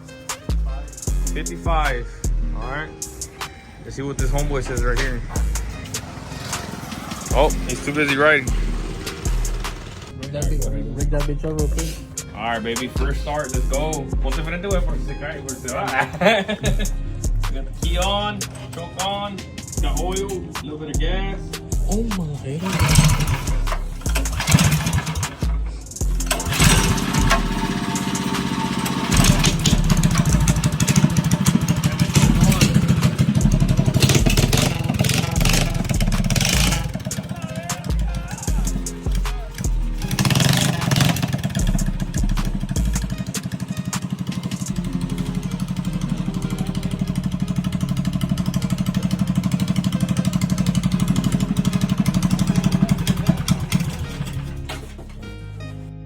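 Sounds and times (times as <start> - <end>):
minibike engine running: 5.5 - 10.2, 22.6 - 54.9.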